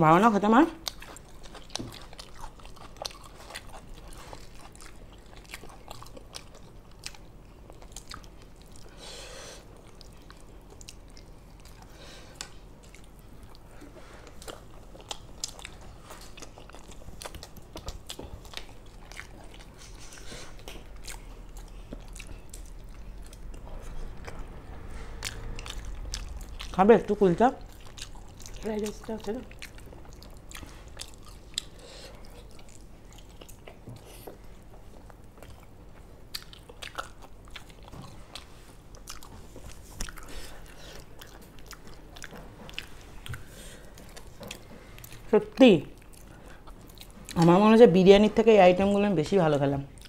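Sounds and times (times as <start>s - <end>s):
people chewing and biting food: 0.8s - 47.6s.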